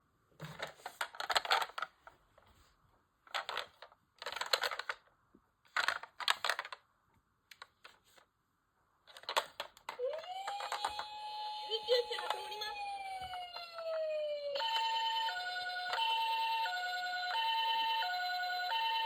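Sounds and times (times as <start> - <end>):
plastic toy rattling and clicking: 0.5 - 2.1, 3.3 - 5.1, 5.7 - 6.8, 9.1 - 11.1, 11.9 - 12.7.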